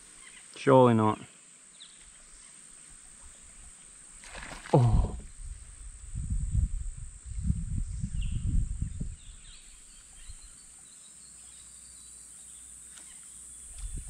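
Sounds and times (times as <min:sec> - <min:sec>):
faint bird chirps: 0:07.8 - 0:14.0.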